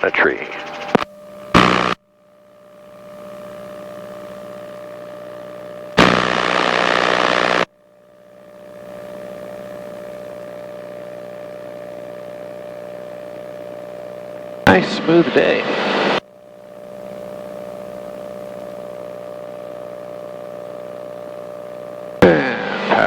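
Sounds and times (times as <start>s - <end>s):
aircraft engine drone over intercom: 0.0s - 1.0s, 14.7s - 16.2s, 22.2s - 23.0s
radio squelch hiss: 0.0s - 2.0s, 6.0s - 7.7s, 14.7s - 16.2s, 22.2s - 23.0s.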